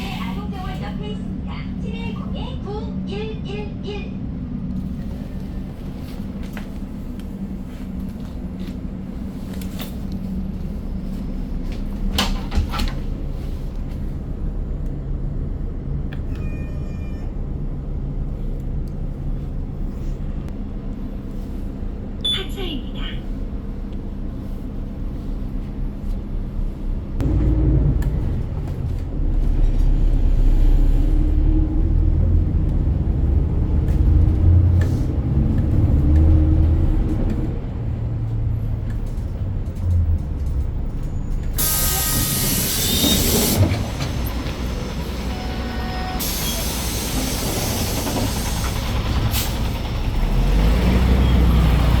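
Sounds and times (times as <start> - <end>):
bus engine rumbling and whining: 0.0 - 52.0
air brakes hissing: 41.4 - 49.9.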